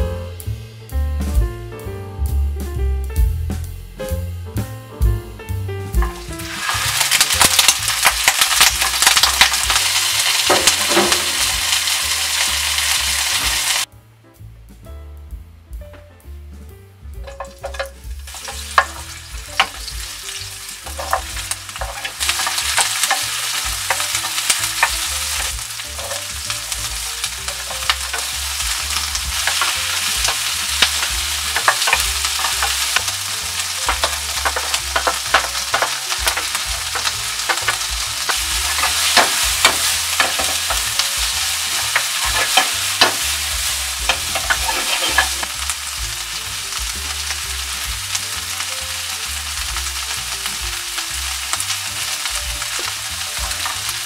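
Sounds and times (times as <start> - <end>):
vegetables sizzling in oil: 5.9 - 13.9, 17.2 - 54.0
wooden spatula clicking on pan: 20.9 - 45.6.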